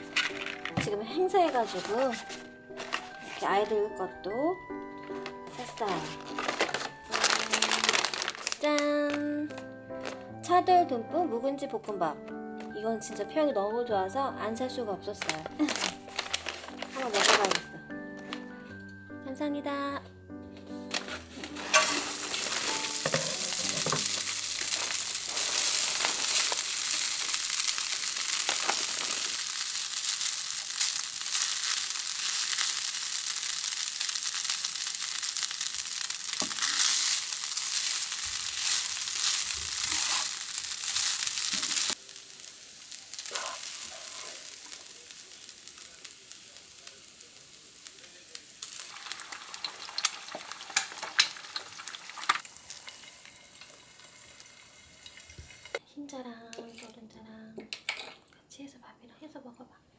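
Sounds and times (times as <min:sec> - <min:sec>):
fried rice sizzling in a pan: 0:00.0 - 0:00.7, 0:01.4 - 0:03.8, 0:05.0 - 0:08.7, 0:15.3 - 0:17.7, 0:21.0 - 0:55.8
eggs frying in a pan: 0:00.0 - 0:03.6, 0:05.0 - 0:08.9, 0:21.5 - 0:55.8.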